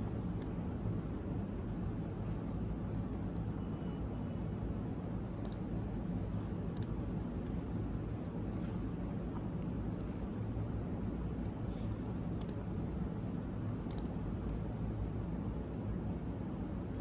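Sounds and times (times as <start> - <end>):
low background hum: 0.0 - 17.0
faint short clicks: 12.4 - 13.0, 13.9 - 14.6.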